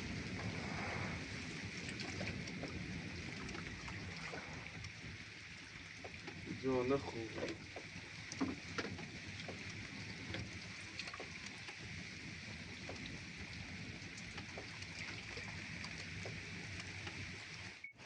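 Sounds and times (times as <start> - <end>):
steady rain: 0.0 - 18.0.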